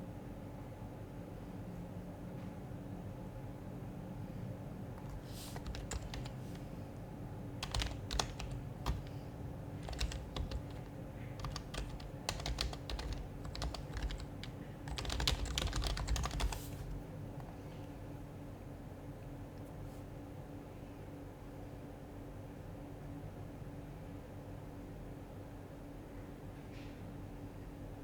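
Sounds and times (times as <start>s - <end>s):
keyboard typing: 5.0s - 6.8s, 7.6s - 17.5s.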